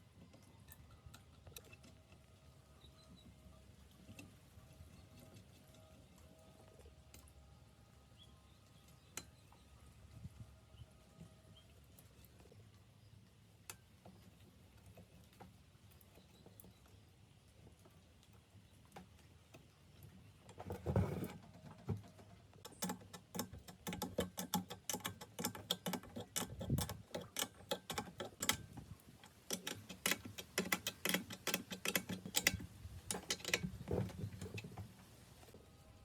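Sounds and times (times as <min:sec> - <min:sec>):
clicks and knocks on metal parts: 0:20.5 - 0:34.9.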